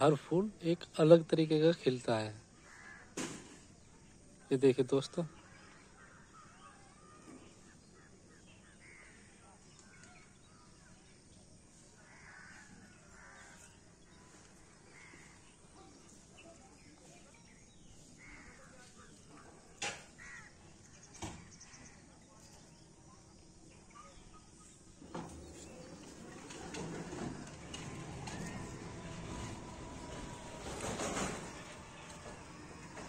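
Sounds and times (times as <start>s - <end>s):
distant crows cawing: 2.4s - 3.5s, 5.0s - 10.9s, 11.9s - 15.7s, 18.0s - 22.1s, 25.4s - 33.0s.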